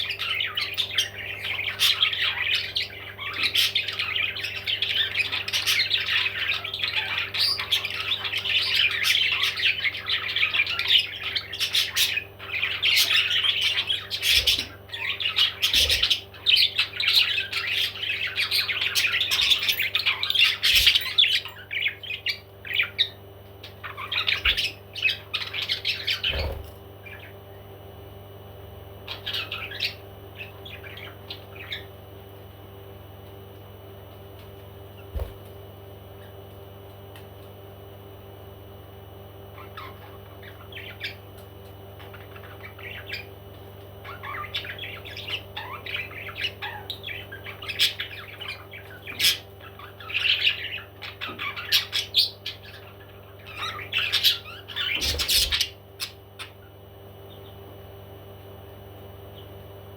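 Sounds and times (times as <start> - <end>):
parrots squawking: 0.0 - 27.4, 29.1 - 31.9, 39.6 - 41.2, 42.0 - 43.4, 44.0 - 56.7
steady low hum: 0.0 - 59.9.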